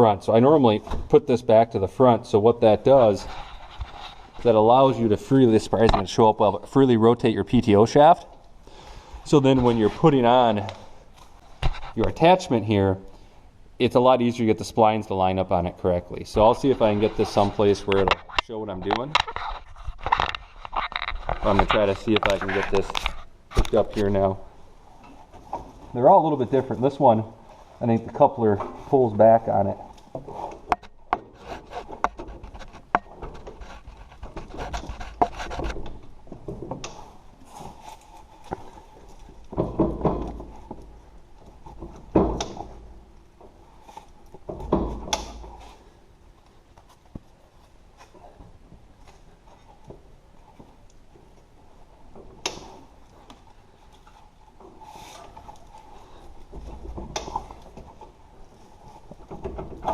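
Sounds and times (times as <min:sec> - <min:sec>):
metal rubbing scrapes: 0:02.6 - 0:05.4, 0:16.4 - 0:24.2, 0:30.2 - 0:36.1.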